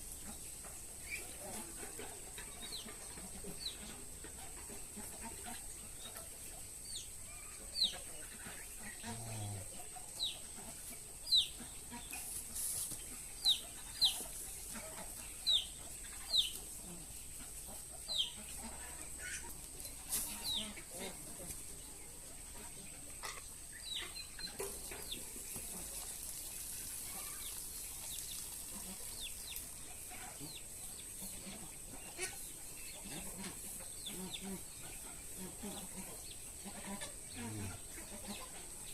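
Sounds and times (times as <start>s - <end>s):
steady high-pitched hiss: 0.0s - 38.9s
bird chirping: 14.9s - 16.6s, 21.8s - 25.3s.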